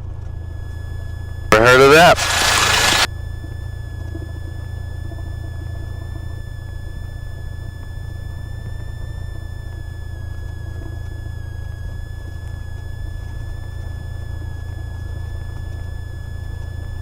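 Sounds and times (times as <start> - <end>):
high-pitched whine: 1.5 - 3.1.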